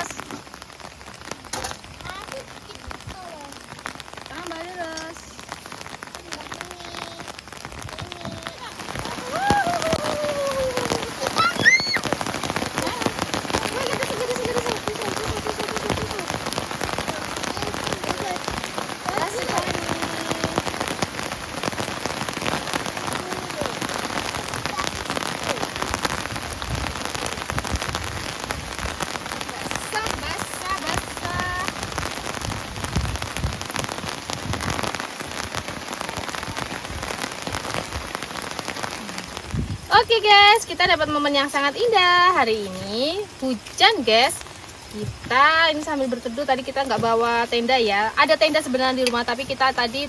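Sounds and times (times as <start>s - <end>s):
rain falling on a surface: 0.0s - 50.0s
faint voice: 6.1s - 16.4s, 22.9s - 25.8s.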